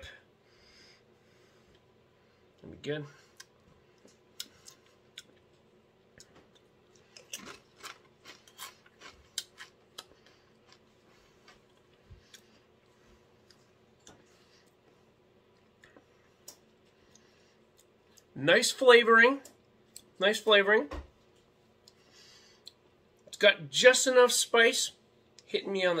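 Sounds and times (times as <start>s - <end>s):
chewing crisp chip crunches: 6.4s - 12.4s.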